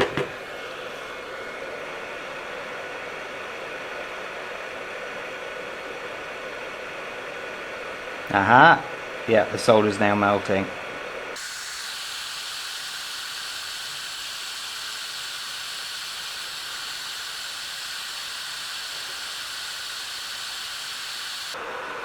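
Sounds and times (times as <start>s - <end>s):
hot-air gun hissing: 11.4s - 21.6s.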